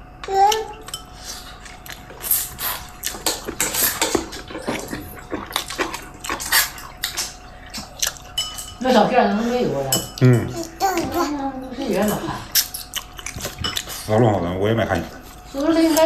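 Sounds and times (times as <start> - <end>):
bowls and spoons clinking: 2.8 - 11.2.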